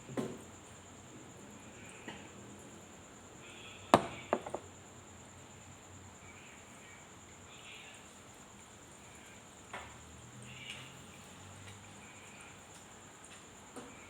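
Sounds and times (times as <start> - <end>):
sharp knocks: 4.0 - 4.6.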